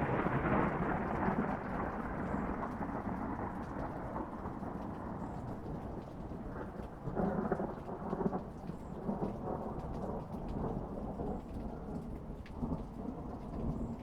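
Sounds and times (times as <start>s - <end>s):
rolling thunder: 0.0s - 5.2s
steady rain: 0.0s - 14.0s
raindrop ticks: 0.1s - 14.0s.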